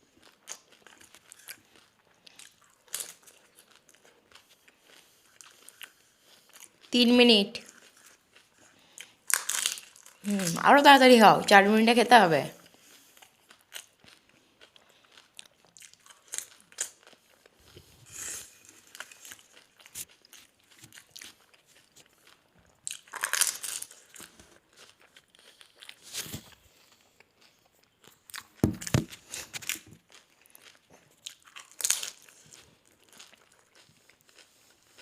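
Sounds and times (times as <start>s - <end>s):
chewing: 0.0s - 6.9s, 7.6s - 10.6s, 12.6s - 28.6s, 29.2s - 35.0s
crisp shells crunching: 9.2s - 10.6s, 22.9s - 26.1s.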